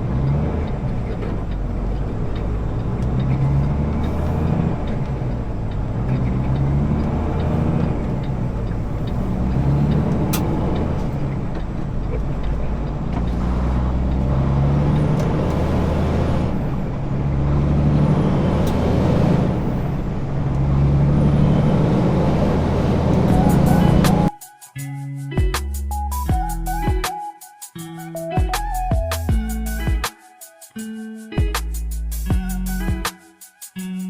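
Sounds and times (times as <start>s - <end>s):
truck diesel engine running: 0.0s - 24.4s.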